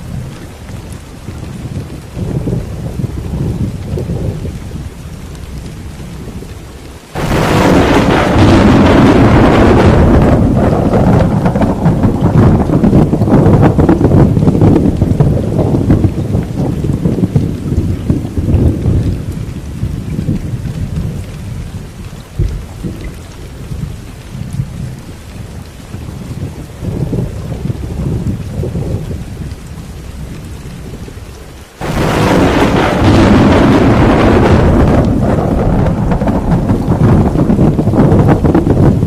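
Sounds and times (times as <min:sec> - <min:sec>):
rolling thunder: 0:00.0 - 0:39.0
steady rain: 0:00.0 - 0:39.0
loud thunder crash: 0:07.1 - 0:16.4, 0:31.8 - 0:39.0.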